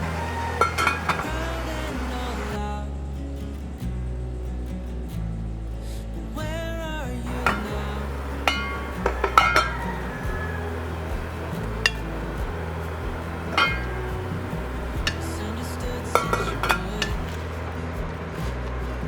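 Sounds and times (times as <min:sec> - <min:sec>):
background music: 0:00.0 - 0:19.0
dishes and cutlery clinking: 0:07.4 - 0:10.4, 0:13.5 - 0:14.2, 0:16.1 - 0:17.2.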